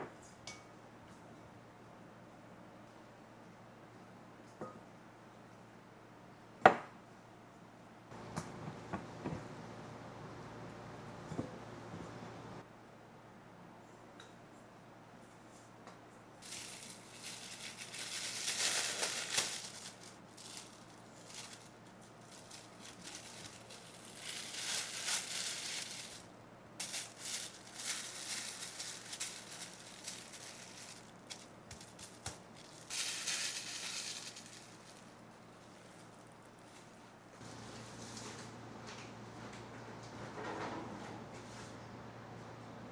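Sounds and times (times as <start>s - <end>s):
dry rustling and crinkling: 16.4s - 37.3s.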